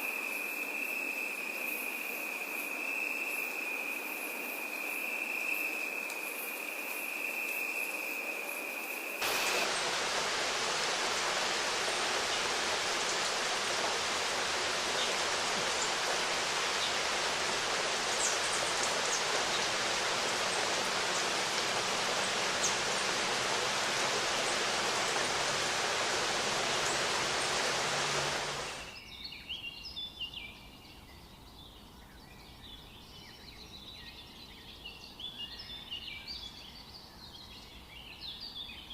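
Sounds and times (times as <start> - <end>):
water rushing: 9.2 - 28.9.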